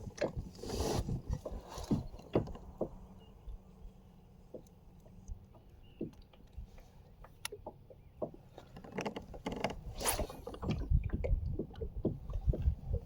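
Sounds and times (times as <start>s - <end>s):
handling knocks and scrapes in kayak: 0.0s - 3.2s, 5.9s - 13.0s.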